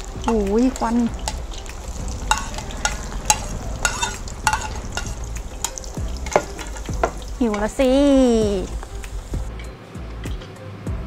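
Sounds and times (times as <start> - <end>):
fries sizzling in hot oil: 0.0 - 9.5
oil popping and crackling: 0.0 - 9.5.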